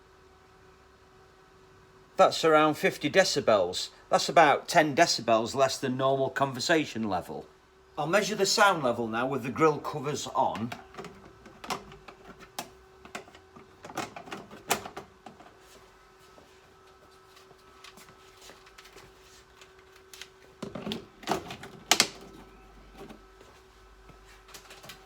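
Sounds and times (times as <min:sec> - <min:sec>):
fridge ventilator fan humming: 0:00.0 - 0:25.0
handling clicks and knocks: 0:10.5 - 0:15.6.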